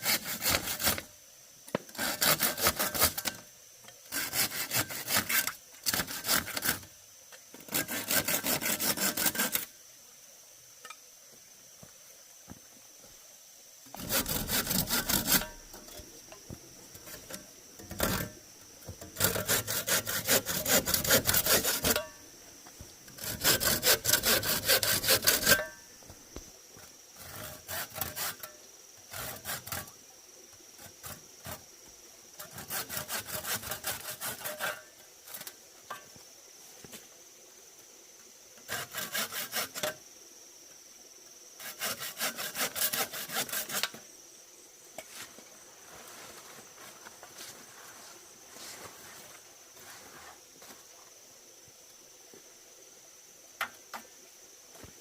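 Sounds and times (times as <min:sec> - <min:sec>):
hand saw cutting wood: 0:00.0 - 0:01.1, 0:01.9 - 0:03.4, 0:04.1 - 0:06.9, 0:07.6 - 0:09.7, 0:13.9 - 0:15.9, 0:17.0 - 0:22.2, 0:23.1 - 0:25.8, 0:27.2 - 0:30.0, 0:32.4 - 0:35.4, 0:38.6 - 0:40.0, 0:41.6 - 0:44.0
high insect drone: 0:00.0 - 0:55.0.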